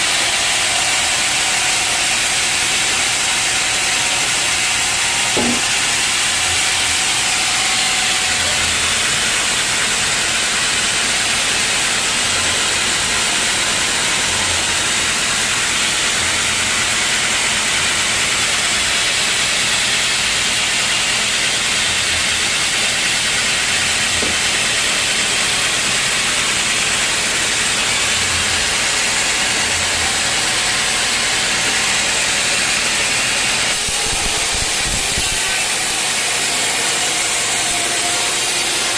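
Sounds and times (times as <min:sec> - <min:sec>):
saw cutting log hiss: 0:26.2 - 0:38.9.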